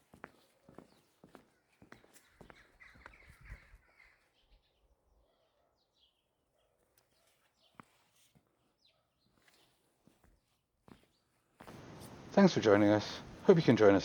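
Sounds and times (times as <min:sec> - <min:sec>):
soft footsteps: 0:00.0 - 0:03.9, 0:07.0 - 0:14.0
faint bird chirps: 0:00.3 - 0:14.0.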